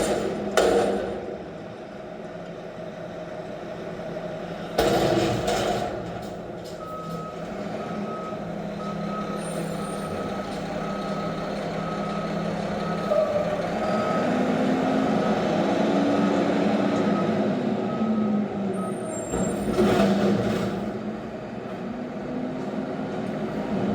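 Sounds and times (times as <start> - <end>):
diesel engine running: 0.0 - 23.9
truck backup alarm beeping: 6.6 - 19.6.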